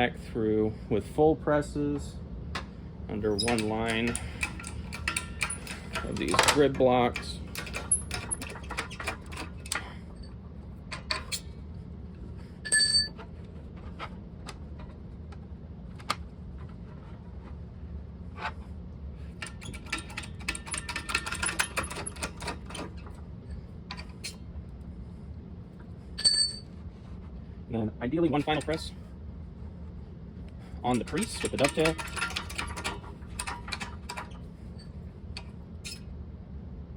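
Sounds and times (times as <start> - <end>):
sheet steel clicking and clinking: 3.3 - 10.0, 19.4 - 23.2, 28.4 - 28.9, 30.9 - 36.0.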